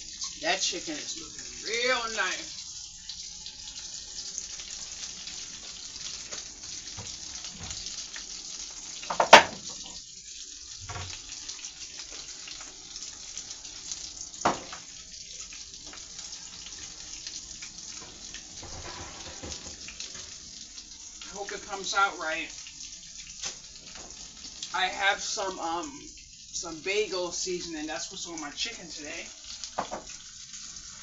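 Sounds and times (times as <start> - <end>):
food sizzling in a frying pan: 0.0 - 31.0
sharp knocks: 9.1 - 9.8.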